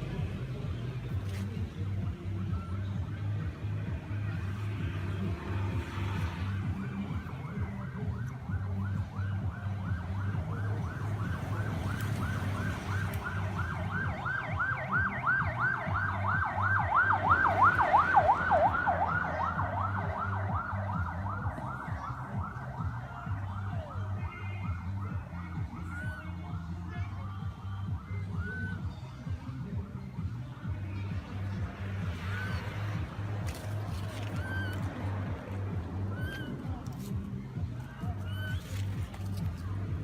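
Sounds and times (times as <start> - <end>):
low engine rumble: 0.0 - 40.0
emergency siren yelping: 7.1 - 26.6, 34.2 - 36.8.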